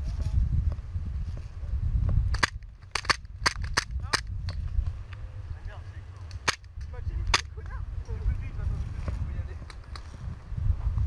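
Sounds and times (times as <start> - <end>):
wind buffeting microphone: 0.0 - 11.0
airsoft guns firing: 2.4 - 4.2, 6.4 - 6.7.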